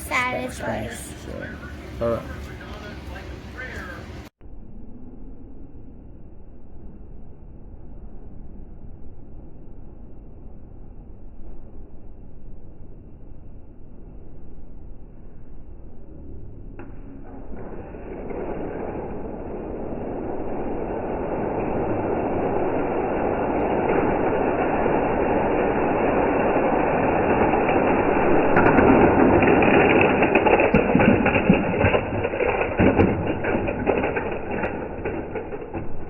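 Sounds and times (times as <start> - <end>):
toy cars rolling on plastic track: 18.1 - 36.0
sharp clicks and knocks: 28.5 - 36.0.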